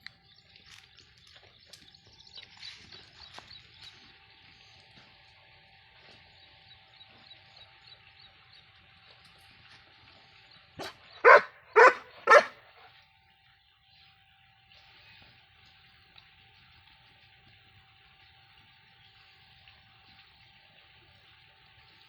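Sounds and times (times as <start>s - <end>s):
dog yelping softly: 10.8s - 12.5s
dog barking: 10.8s - 12.6s.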